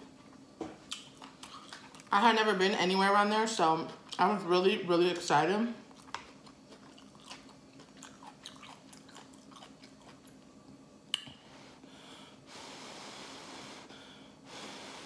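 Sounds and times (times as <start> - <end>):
close chewing with mouth clicks: 0.9 - 2.1, 5.9 - 10.4
airy breath hiss: 11.4 - 15.0.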